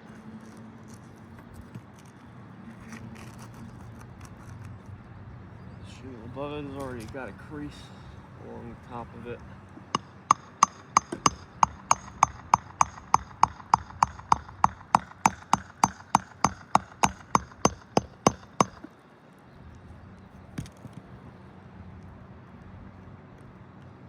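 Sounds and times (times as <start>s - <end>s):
hammer taps with metallic ring: 9.8s - 18.9s.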